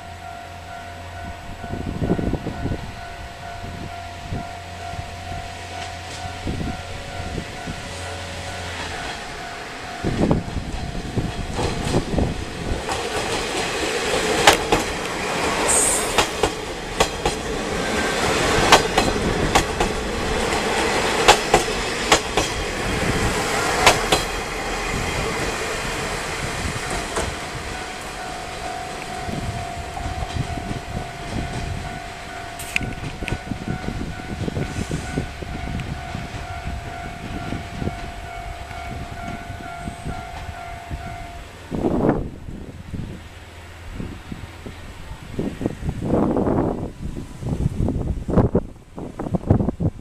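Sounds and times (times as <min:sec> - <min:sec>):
train rumble: 0:00.0 - 0:50.0
train wheels clacking on rails: 0:05.7 - 0:41.4.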